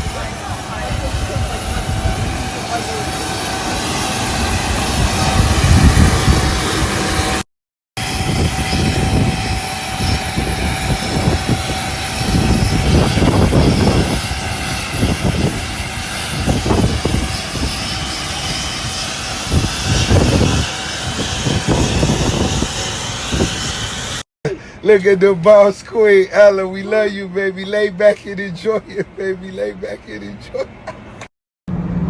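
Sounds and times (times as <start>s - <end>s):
aircraft engine rumble: 0.0s - 7.4s, 8.0s - 24.9s.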